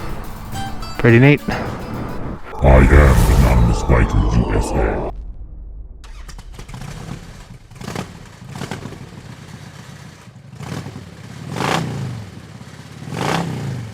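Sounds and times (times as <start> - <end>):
motorcycle engine revving: 6.1 - 13.9.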